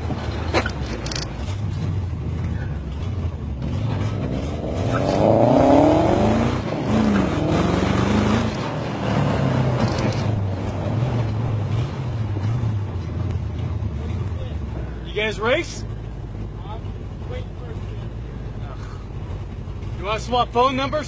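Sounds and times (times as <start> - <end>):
engine revving: 0.0 - 21.0.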